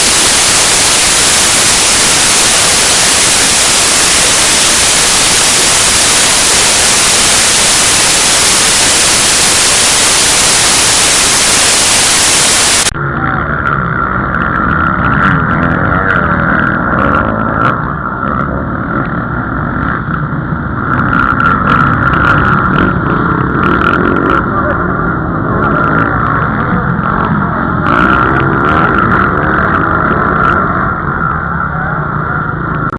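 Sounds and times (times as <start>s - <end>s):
loud static hiss: 0.0s - 13.0s
motocross motorcycle engines: 0.0s - 32.9s.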